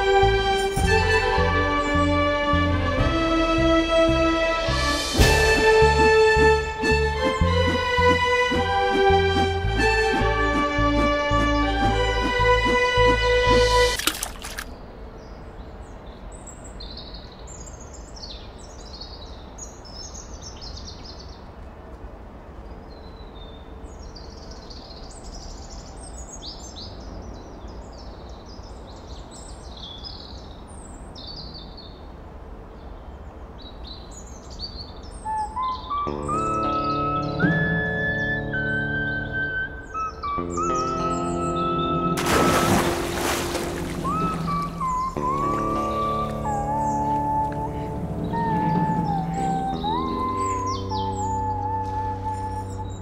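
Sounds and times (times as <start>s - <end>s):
music with rising notes: 0.0s - 14.0s, 35.9s - 53.0s
outdoor background hiss: 0.0s - 53.0s
birds chirping: 22.8s - 53.0s.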